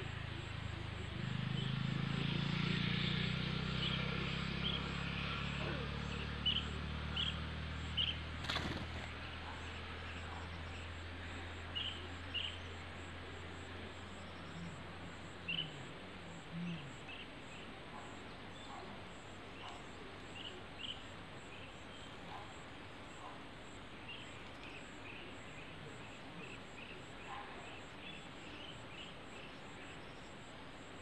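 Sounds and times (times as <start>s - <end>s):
bird chirping: 3.8s - 10.9s.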